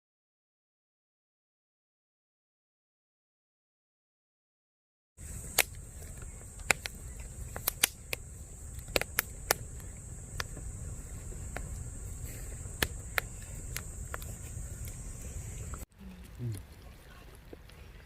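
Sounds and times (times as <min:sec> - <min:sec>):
campfire crackling and popping: 0:05.2 - 0:18.0.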